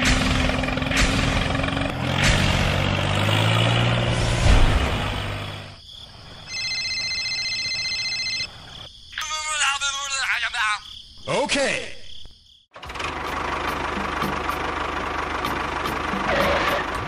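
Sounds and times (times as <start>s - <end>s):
vehicle engine running: 0.0s - 5.8s, 12.8s - 17.0s.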